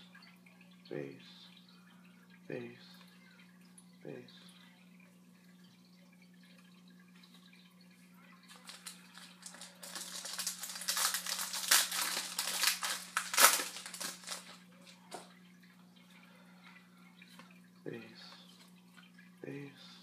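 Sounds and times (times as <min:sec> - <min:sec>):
card pack wrapper crinkling: 0:08.5 - 0:14.6.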